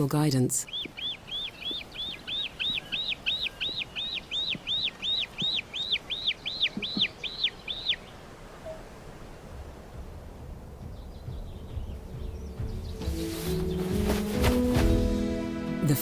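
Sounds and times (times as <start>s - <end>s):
bird whistled calls: 0.7s - 8.8s.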